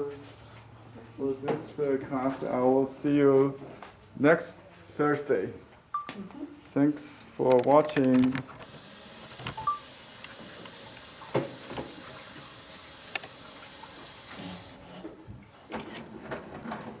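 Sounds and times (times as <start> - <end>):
steady hiss: 8.6 - 14.9.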